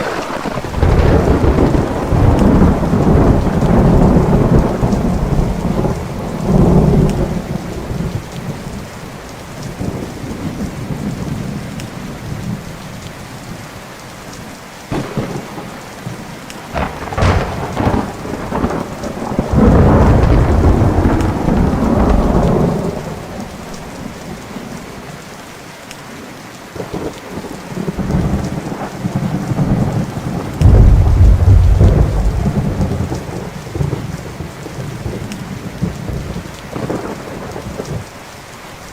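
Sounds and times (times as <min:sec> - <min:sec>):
sharp thunder crack: 0:00.0 - 0:08.2, 0:14.9 - 0:23.2, 0:29.1 - 0:34.0
rolling thunder: 0:00.0 - 0:12.6, 0:14.9 - 0:25.0, 0:26.8 - 0:38.1
steady rain: 0:00.0 - 0:38.9.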